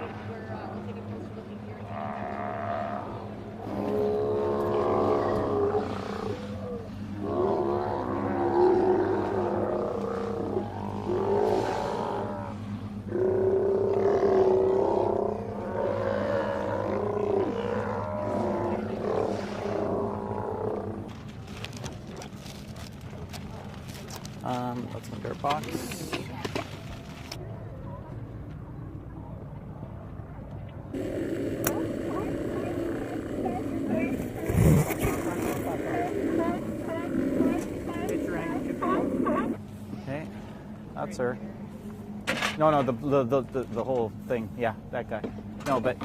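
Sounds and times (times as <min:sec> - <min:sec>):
steady low hum: 0:00.0 - 0:46.0
sea lion calling: 0:01.8 - 0:21.1, 0:31.0 - 0:39.6.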